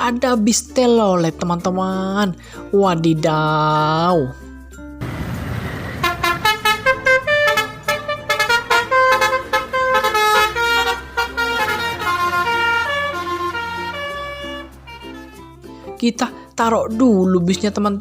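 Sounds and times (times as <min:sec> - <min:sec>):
musical bus horn tune: 0:05.5 - 0:15.9.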